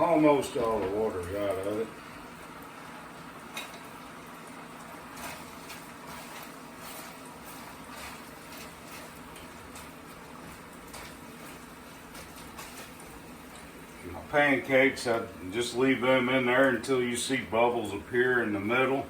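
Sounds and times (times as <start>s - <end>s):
food simmering in a pot: 0.0s - 19.0s
small pops and crackles: 3.4s - 14.0s.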